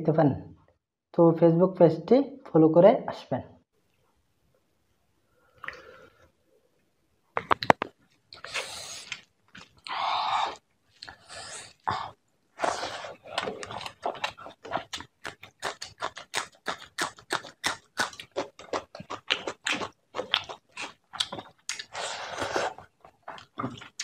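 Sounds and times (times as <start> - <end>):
rhythmic chewing: 7.6 - 24.0.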